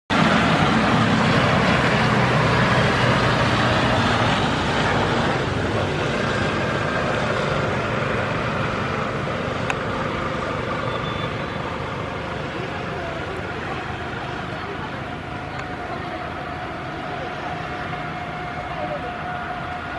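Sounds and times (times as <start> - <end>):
jet engines running: 0.1 - 19.9.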